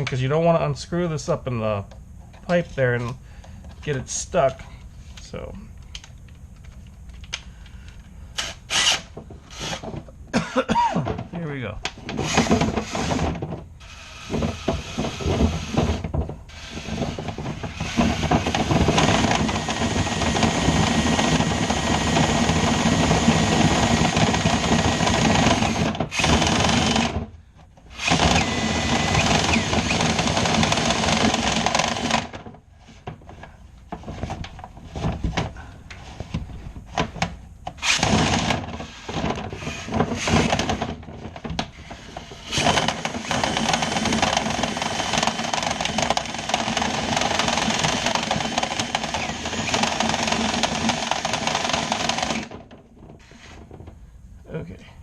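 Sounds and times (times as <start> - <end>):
power drill spinning: 7.9 - 10.0, 12.0 - 27.3, 27.9 - 33.0, 37.8 - 53.8.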